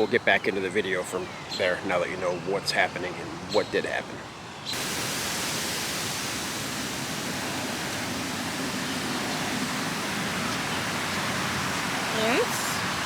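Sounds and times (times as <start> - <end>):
steady rushing noise: 4.8 - 13.0.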